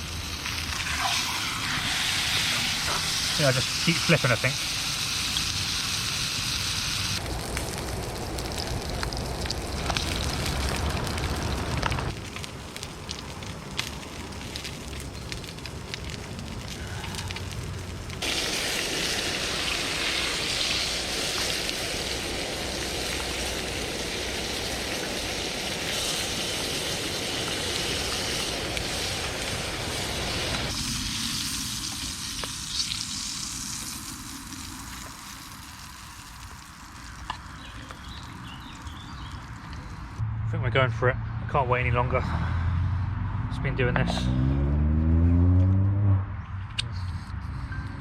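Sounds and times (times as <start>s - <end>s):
steak sizzling in a frying pan: 0.0s - 16.2s, 18.2s - 39.3s.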